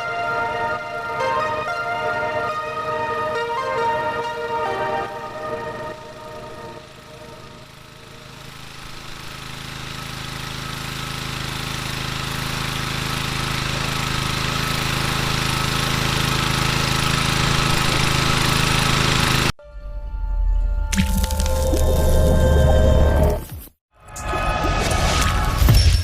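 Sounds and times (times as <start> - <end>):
small petrol engine running: 5.7 - 19.5.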